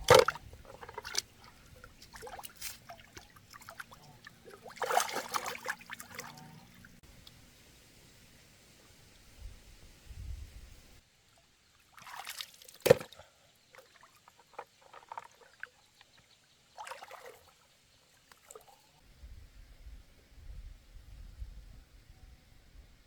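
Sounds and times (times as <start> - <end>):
shallow water splashing: 0.0 - 7.0, 11.8 - 18.9.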